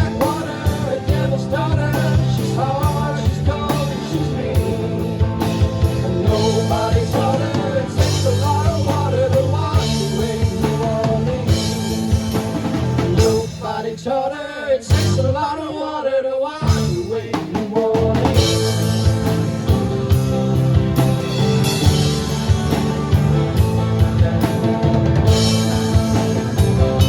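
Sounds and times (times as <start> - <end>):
rock band playing: 0.0 - 14.1, 14.9 - 15.4, 16.6 - 27.0
melodic lead line: 18.4 - 27.0.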